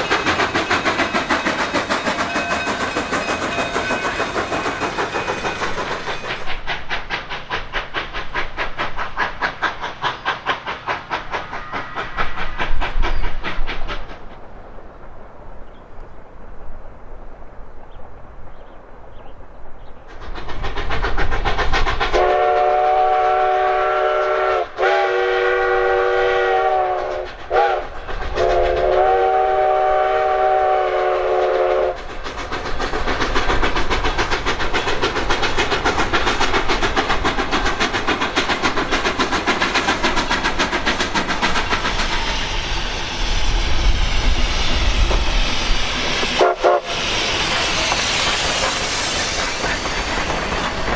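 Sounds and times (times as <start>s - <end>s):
steam locomotive chime whistle: 0.0s - 6.6s, 22.2s - 32.0s, 41.9s - 50.9s
steam exhaust: 0.0s - 14.6s, 20.1s - 50.9s
wheels clattering on rails: 0.0s - 16.8s, 31.9s - 50.9s.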